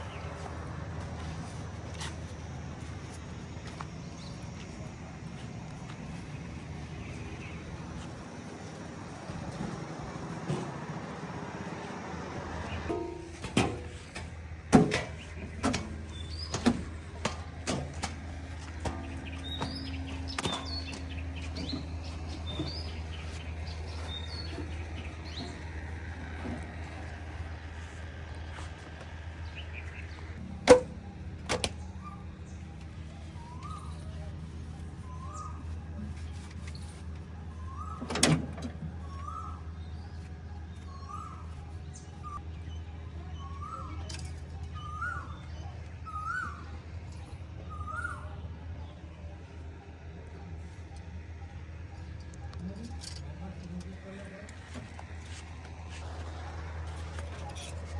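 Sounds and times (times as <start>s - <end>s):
low engine hum: 0.0s - 57.9s
sharp knocks and clanks: 12.7s - 23.0s
bird chirps: 15.2s - 17.2s, 18.4s - 28.7s, 29.4s - 38.2s, 38.8s - 49.6s.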